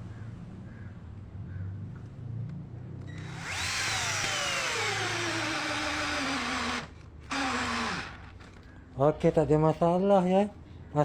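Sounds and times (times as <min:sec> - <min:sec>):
cordless drill driving a screw: 0:03.1 - 0:08.5.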